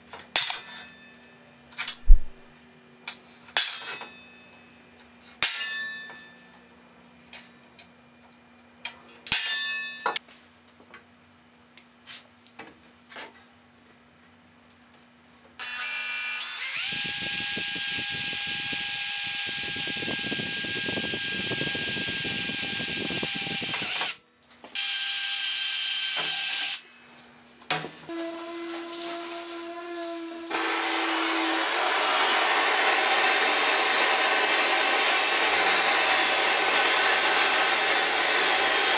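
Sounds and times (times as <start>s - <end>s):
electric drill boring steel: 15.6s - 24.2s, 24.8s - 26.8s, 28.1s - 38.9s.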